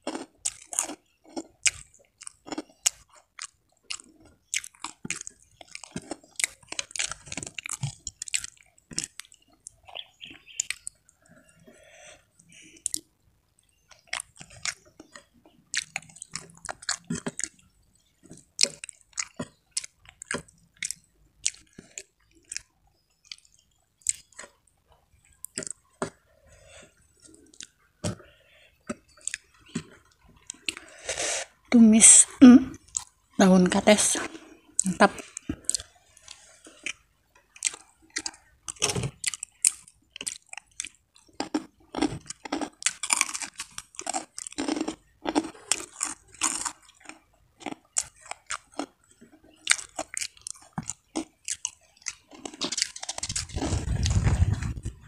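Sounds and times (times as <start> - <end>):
mouth clicks while chewing: 0.0 - 11.4, 13.9 - 24.6, 34.8 - 55.0.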